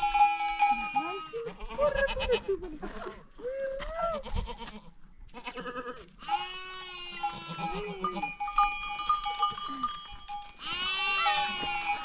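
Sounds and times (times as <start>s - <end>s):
goats bleating: 1.1s - 3.2s, 4.2s - 8.4s, 9.6s - 12.0s.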